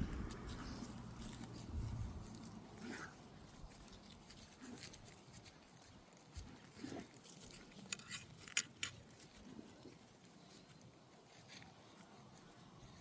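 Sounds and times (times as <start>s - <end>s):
dog snuffling: 0.0s - 7.9s.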